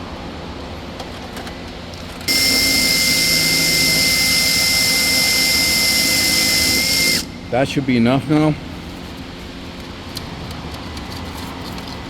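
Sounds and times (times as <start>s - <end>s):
power drill whining: 2.3s - 7.3s.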